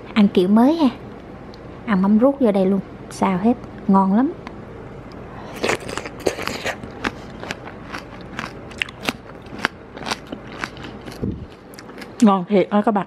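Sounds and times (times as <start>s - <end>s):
mouth chewing crunchy food: 5.4s - 12.3s.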